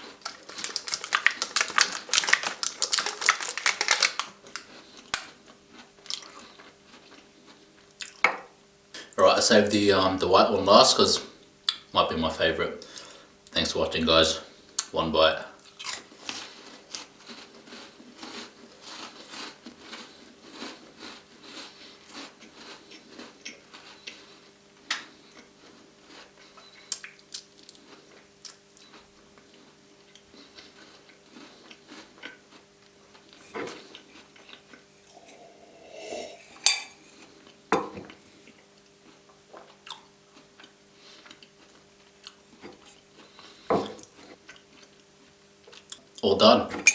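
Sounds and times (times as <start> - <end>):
biscuit crunching and chewing: 0.0 - 8.3, 15.6 - 35.3, 37.1 - 46.3.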